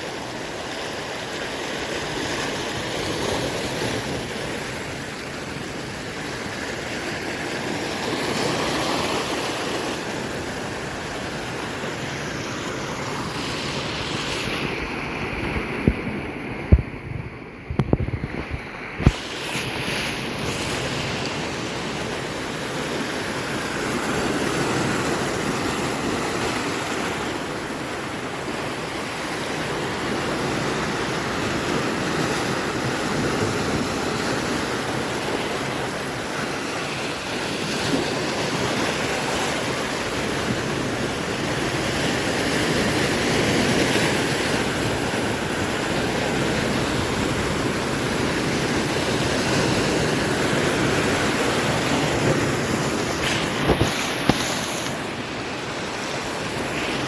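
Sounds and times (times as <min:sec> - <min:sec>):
surf waves breaking on shore: 0:00.0 - 0:57.0.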